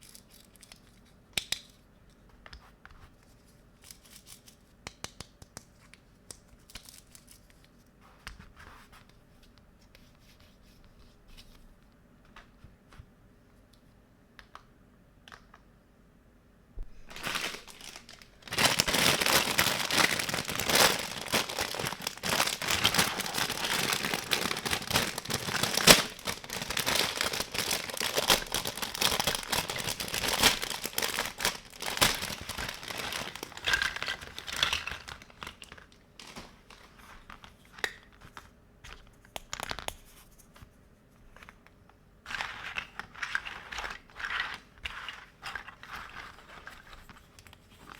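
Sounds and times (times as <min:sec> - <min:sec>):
packaging crinkling and tearing: 0:17.0 - 0:38.0.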